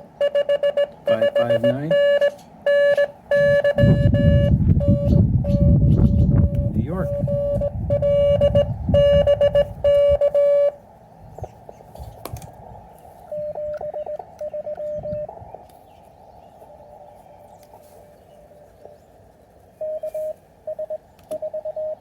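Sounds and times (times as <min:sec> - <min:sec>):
receiver hiss: 0:00.0 - 0:05.1
morse code tones: 0:00.0 - 0:10.8, 0:13.3 - 0:15.3, 0:19.8 - 0:22.0.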